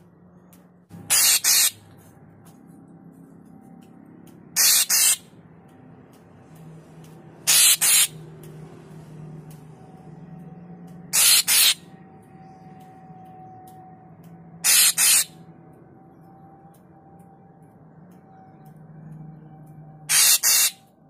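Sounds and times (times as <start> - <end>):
bird harsh hissing calls: 1.1 - 1.8, 4.6 - 5.2, 7.5 - 8.2, 11.1 - 11.8, 14.6 - 15.3, 20.1 - 20.8.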